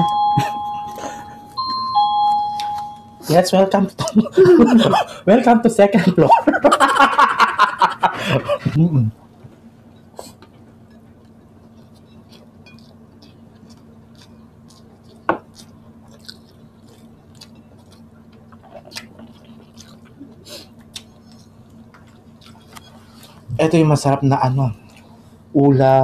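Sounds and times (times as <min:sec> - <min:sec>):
faint steady hum: 0:00.0 - 0:26.0
chewing and mouth smacking: 0:10.9 - 0:23.5.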